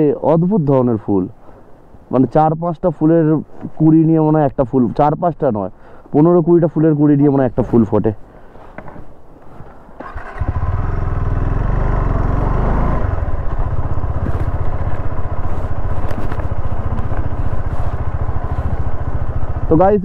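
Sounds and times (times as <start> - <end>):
motorcycle engine running: 10.1 - 20.0.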